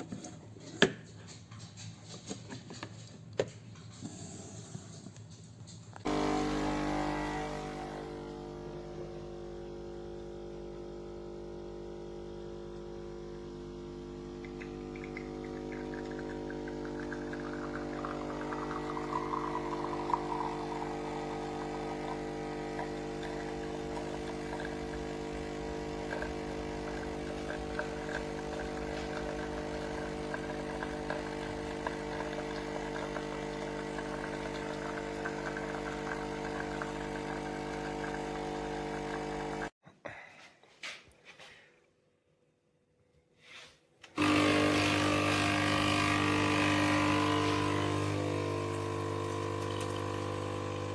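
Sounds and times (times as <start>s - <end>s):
espresso machine pump buzzing: 6.0s - 39.7s, 44.2s - 50.9s.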